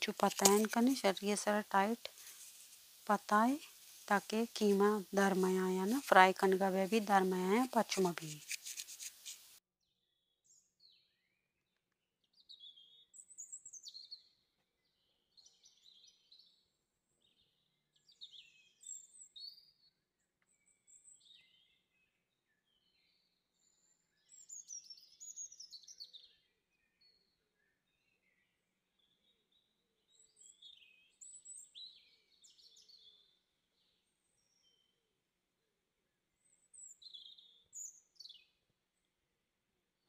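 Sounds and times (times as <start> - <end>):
faint bird chirps and trills: 12.3 - 35.0, 36.1 - 39.2.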